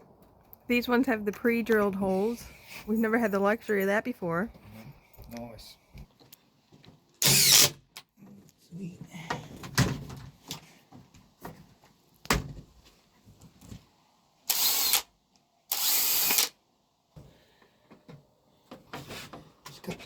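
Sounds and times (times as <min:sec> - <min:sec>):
power tool bursts: 0:07.2 - 0:07.8, 0:14.5 - 0:15.1, 0:15.7 - 0:16.6.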